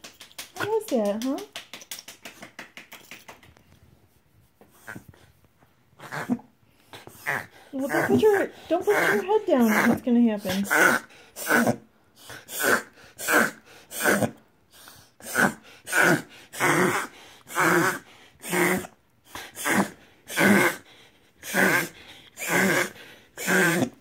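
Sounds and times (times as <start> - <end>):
dog reverse sneezing: 10.5 - 14.4.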